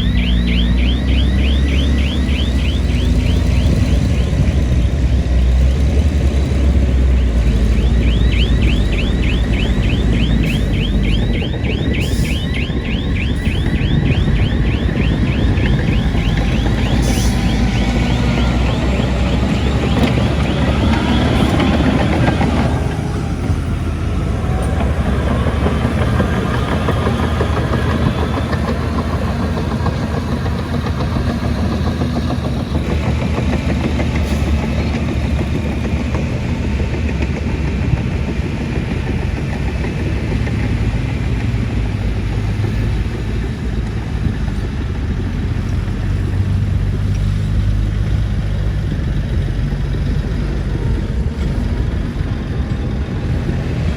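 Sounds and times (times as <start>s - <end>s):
high wavering squeals: 0.0s - 4.9s, 6.8s - 31.4s
diesel machinery engine drone: 0.0s - 53.9s.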